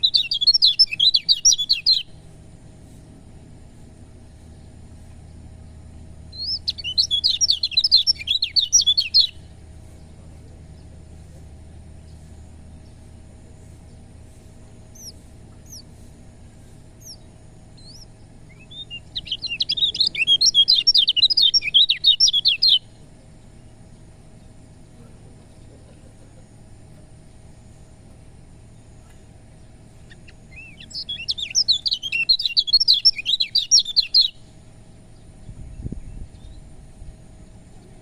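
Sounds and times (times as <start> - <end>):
bird chattering song: 0.0 - 3.2, 4.0 - 38.0
faint low hum: 0.0 - 38.0.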